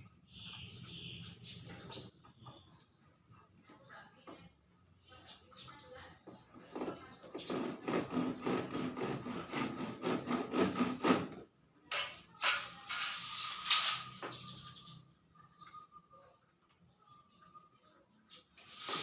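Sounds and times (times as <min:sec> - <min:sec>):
rhythmic scraping: 0:11.9 - 0:14.3, 0:18.6 - 0:19.0.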